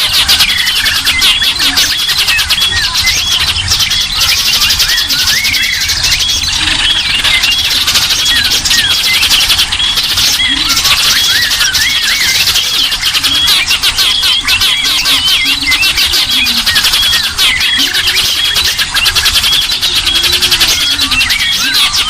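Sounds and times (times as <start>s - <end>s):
songbirds chirping and whistling: 0.0s - 22.0s.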